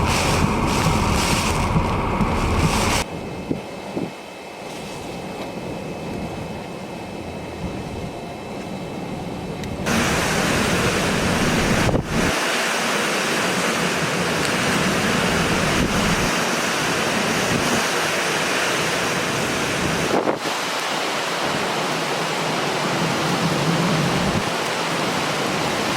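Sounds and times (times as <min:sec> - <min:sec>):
strong wind buffeting microphone: 0:00.0 - 0:04.2, 0:09.4 - 0:12.4, 0:13.9 - 0:18.2.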